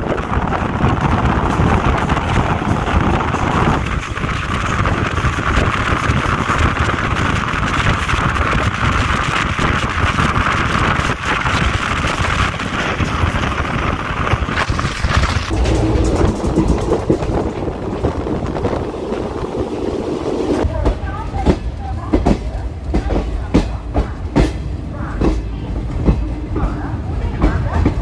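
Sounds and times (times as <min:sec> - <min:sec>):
wind rushing on microphone: 0:00.0 - 0:20.7
train wheels rumbling on rails: 0:00.0 - 0:28.0.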